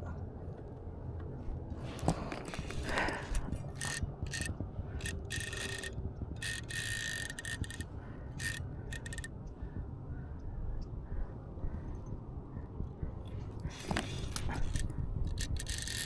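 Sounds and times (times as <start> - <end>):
fishing reel drag clicking: 2.9 - 9.3, 13.8 - 16.0.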